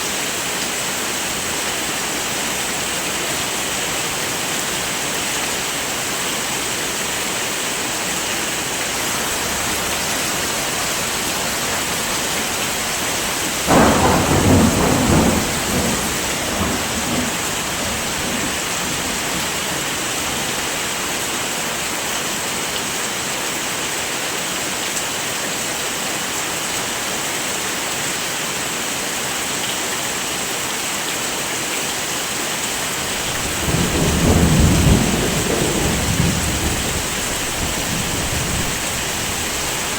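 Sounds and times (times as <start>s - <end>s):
heavy rain falling: 0.0s - 39.9s
thunder rolling: 9.0s - 20.6s, 33.1s - 39.9s.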